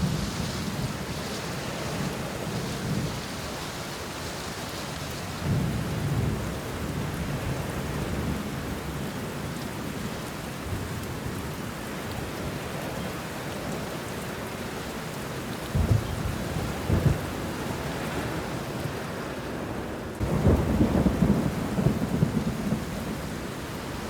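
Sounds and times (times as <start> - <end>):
thunder rumbling: 0.0 - 3.6, 15.6 - 18.7, 20.2 - 24.0
rain falling on leaves: 0.0 - 24.0.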